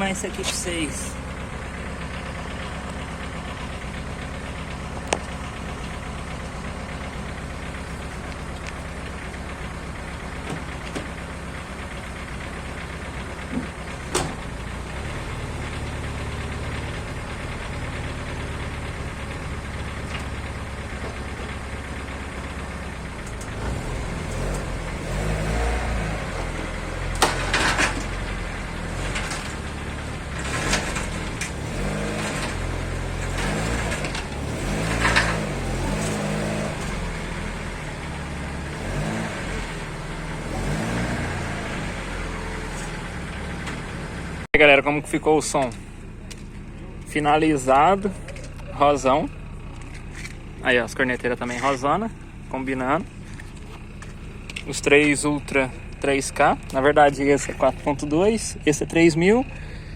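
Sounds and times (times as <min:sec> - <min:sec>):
car engine idling: 0:00.0 - 0:59.9
sharp clicks and knocks: 0:26.4 - 0:28.3.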